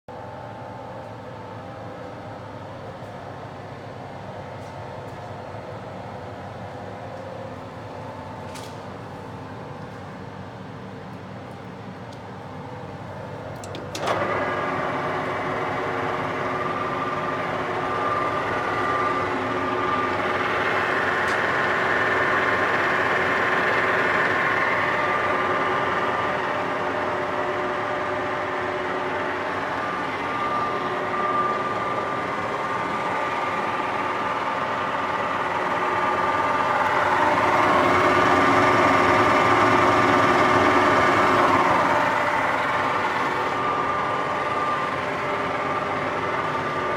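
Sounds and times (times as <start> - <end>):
lathe running with steady whine: 11.3 - 46.9.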